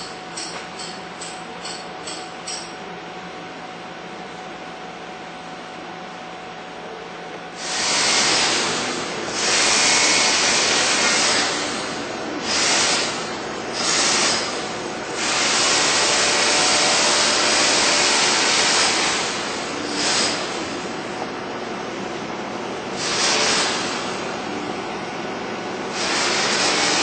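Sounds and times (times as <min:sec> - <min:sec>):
pressurized sprayer hissing: 0:07.6 - 0:21.1, 0:22.9 - 0:24.3, 0:25.8 - 0:27.0.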